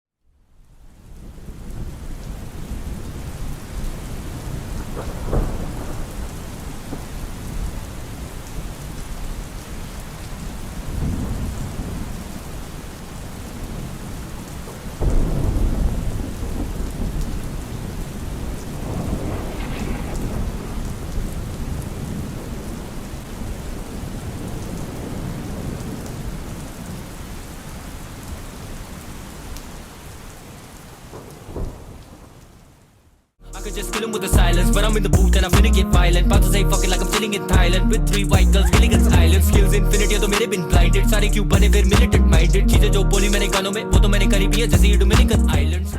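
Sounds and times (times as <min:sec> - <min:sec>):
steady rain: 0:00.2 - 0:33.4
thunder rolling: 0:01.2 - 0:08.4, 0:10.8 - 0:12.4, 0:15.0 - 0:26.7, 0:31.1 - 0:32.2.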